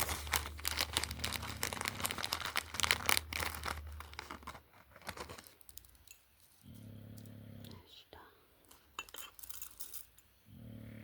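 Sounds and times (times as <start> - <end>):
packaging crinkling and tearing: 0.0 - 6.0.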